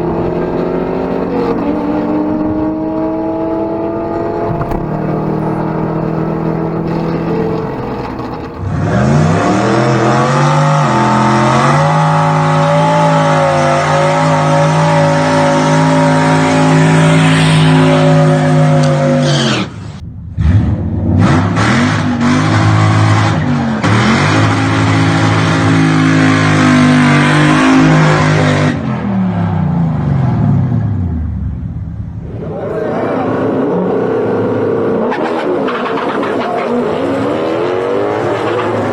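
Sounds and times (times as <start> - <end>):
engine at high revs: 0.0 - 30.9, 32.2 - 38.9.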